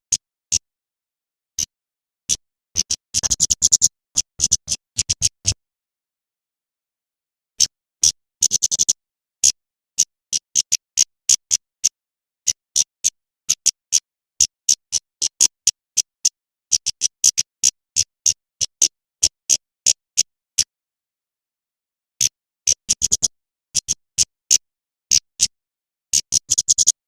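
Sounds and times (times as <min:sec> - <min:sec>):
bird chip calls: 0:02.3 - 0:05.6, 0:07.6 - 0:11.9, 0:22.8 - 0:25.5, 0:26.2 - 0:27.0.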